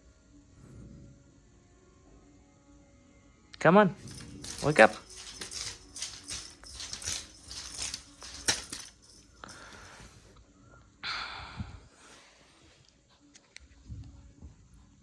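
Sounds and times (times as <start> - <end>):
toy wand swishing over bedding: 4.0 - 10.2.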